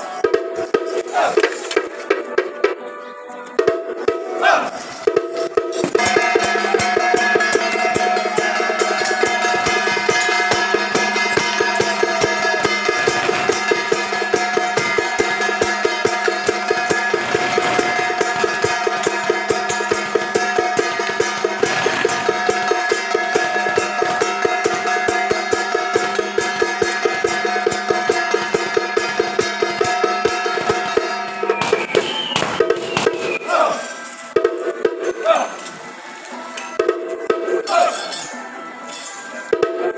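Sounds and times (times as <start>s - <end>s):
drum beaten fast: 5.9s - 33.4s
ringing gong tones: 6.0s - 31.6s.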